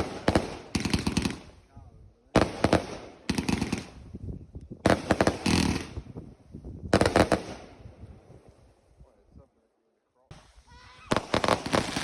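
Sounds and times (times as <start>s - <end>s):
fireworks bangs and cracks: 0.0s - 1.5s, 2.3s - 4.0s, 4.8s - 6.2s, 6.9s - 7.8s, 11.0s - 12.0s.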